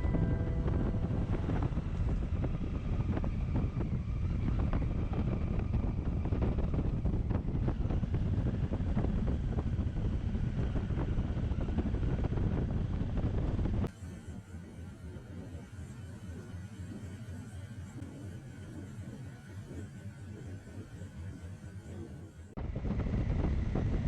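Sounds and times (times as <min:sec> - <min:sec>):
motorcycle running: 0:00.0 - 0:13.9
wind buffeting microphone: 0:00.0 - 0:13.9, 0:22.0 - 0:24.0.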